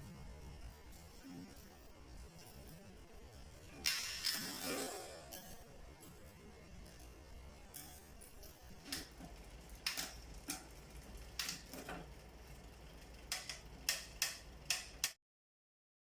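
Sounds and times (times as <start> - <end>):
bike drivetrain clicking: 8.8 - 15.2.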